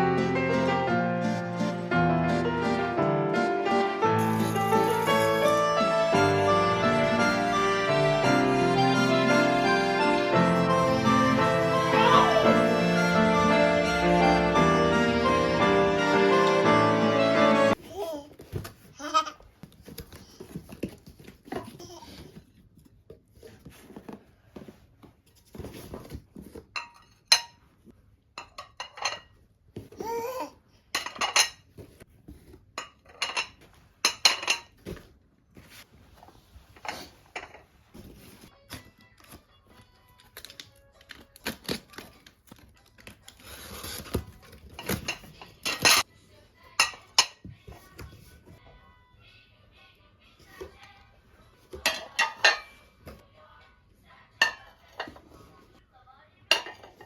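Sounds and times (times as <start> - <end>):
dishes and pots clattering: 26.6 - 27.7, 28.4 - 29.4, 30.9 - 31.8, 32.8 - 35.0, 36.8 - 37.7, 44.1 - 46.1, 46.8 - 47.5, 51.7 - 53.2, 54.4 - 55.4, 56.5 - 57.0.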